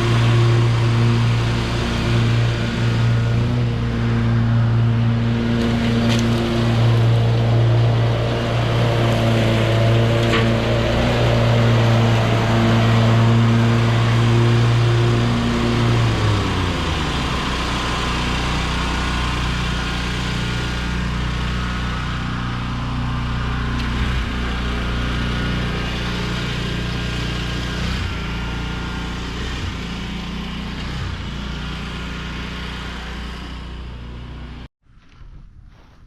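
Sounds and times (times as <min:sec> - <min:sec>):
skid steer engine running: 0:00.0 - 0:34.7.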